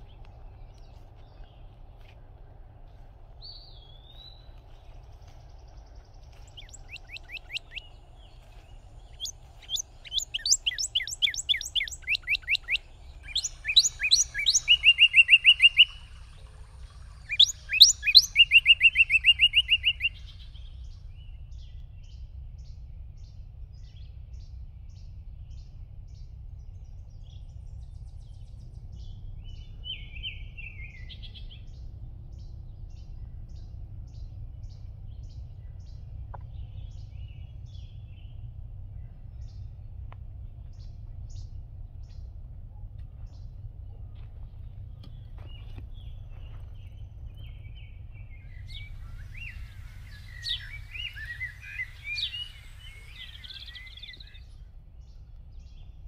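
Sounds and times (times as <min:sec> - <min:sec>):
faint low rumble: 0:00.0 - 0:56.0
songbird singing: 0:00.0 - 0:56.0.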